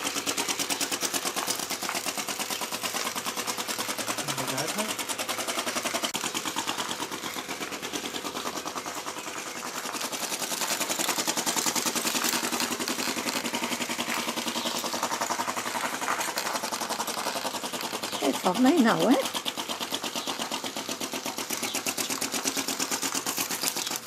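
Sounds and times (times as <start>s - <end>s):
model engine ticking: 0.0s - 24.0s.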